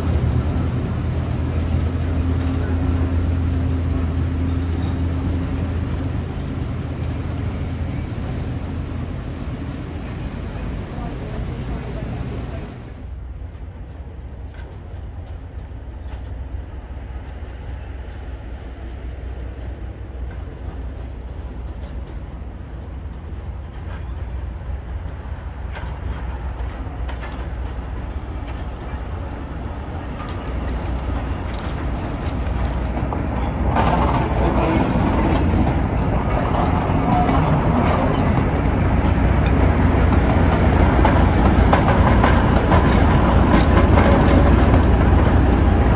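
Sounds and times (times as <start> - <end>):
rail clicks: 0.0 - 13.0, 23.2 - 45.9
train rumbling on rails: 0.0 - 45.9.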